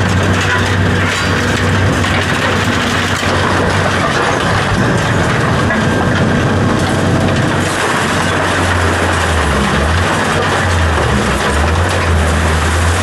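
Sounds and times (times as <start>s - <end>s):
heavy equipment engine humming: 0.0s - 13.0s
material crackling and grinding: 0.0s - 13.0s.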